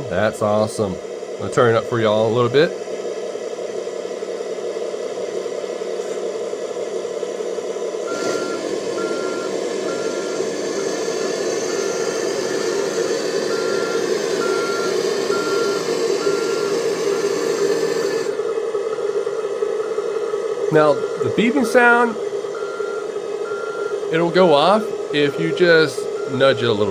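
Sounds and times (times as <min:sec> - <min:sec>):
truck engine through small speaker: 0:00.0 - 0:26.9
backup beeper: 0:08.1 - 0:18.4, 0:20.7 - 0:26.9.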